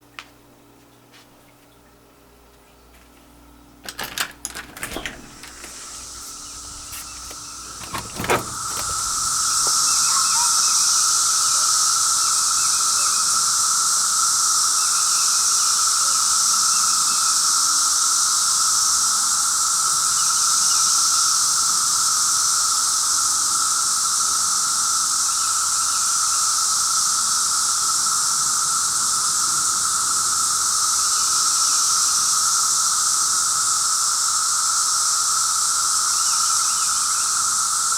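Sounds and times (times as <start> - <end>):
clicks: 3.9 - 10.0
cicadas chorus: 5.0 - 15.7, 23.8 - 37.9.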